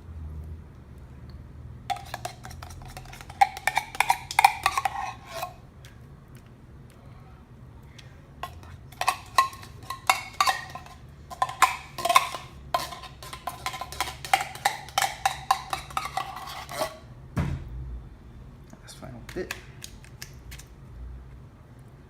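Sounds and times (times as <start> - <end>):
spoon knocking against dish: 1.9 - 5.2, 8.4 - 16.9.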